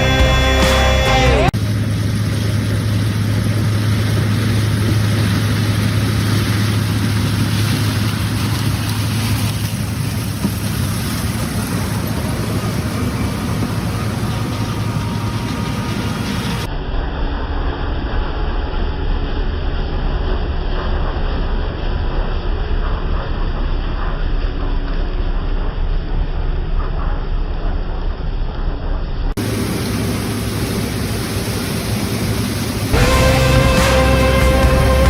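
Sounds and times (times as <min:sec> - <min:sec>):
harvest machinery engine running: 0:00.0 - 0:16.7, 0:29.4 - 0:35.0.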